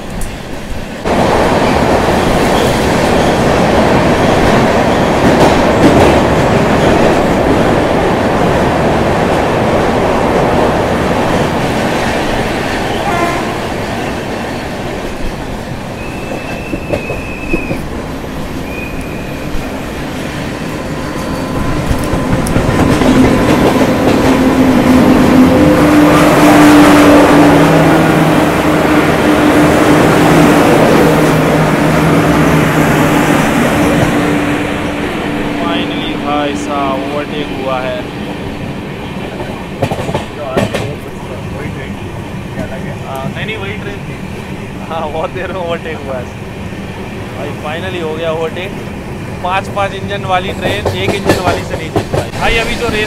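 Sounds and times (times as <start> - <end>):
high train horn toots: 12.9 - 13.8.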